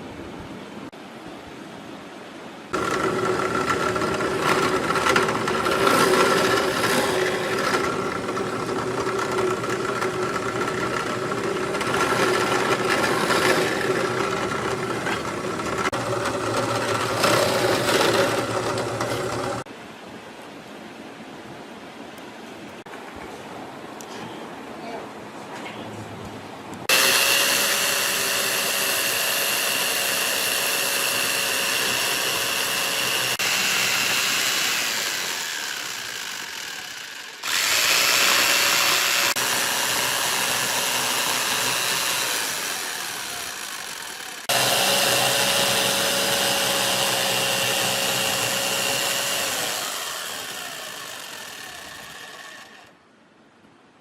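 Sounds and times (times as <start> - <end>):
angle grinder whining: 2.8 - 19.7, 26.9 - 52.9.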